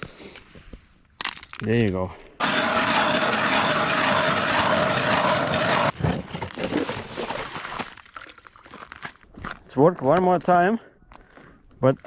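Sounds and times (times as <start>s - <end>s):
small motor whining: 2.4s - 6.0s.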